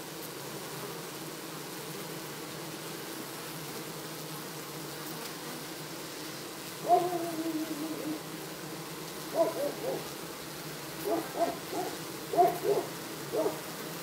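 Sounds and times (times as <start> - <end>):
bird hooting: 6.8 - 8.3, 9.3 - 10.1, 11.0 - 13.6.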